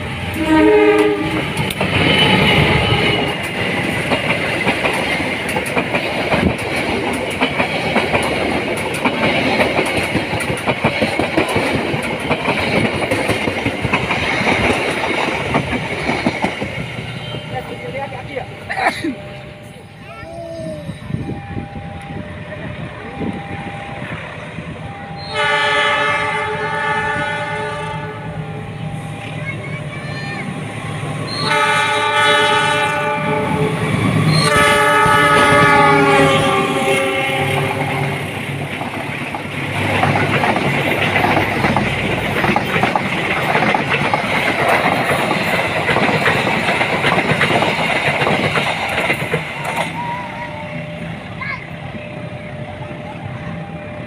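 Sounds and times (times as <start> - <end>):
low train rumble: 0.0 - 54.0
train horn blast: 0.3 - 3.4, 25.2 - 28.4, 31.3 - 38.3.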